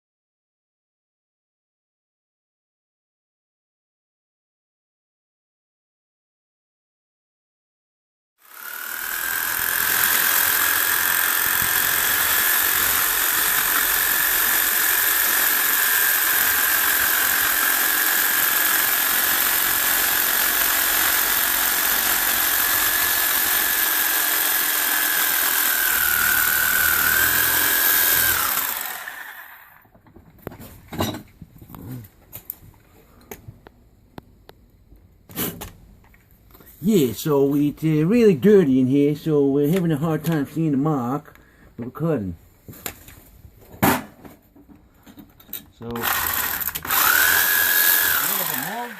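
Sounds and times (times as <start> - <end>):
power tool whining: 8.4 - 29.9, 45.9 - 48.9.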